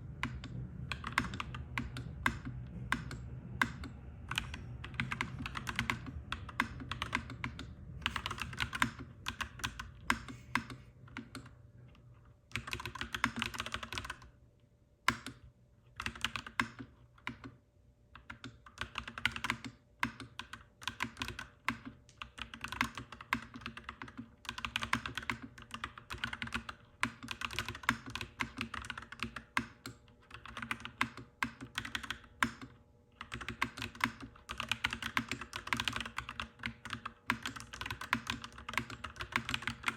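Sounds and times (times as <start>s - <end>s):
low steady hum: 0.0s - 18.7s
mechanical keyboard typing: 0.2s - 11.6s, 12.5s - 14.3s, 15.1s - 17.6s, 18.2s - 39.9s.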